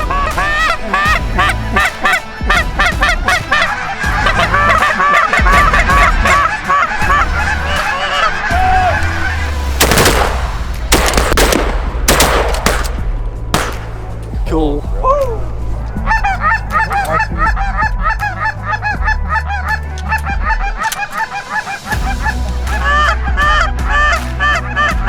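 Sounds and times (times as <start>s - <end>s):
geese honking: 0.0s - 10.5s, 15.5s - 25.0s
sharp bangs: 9.8s - 14.3s.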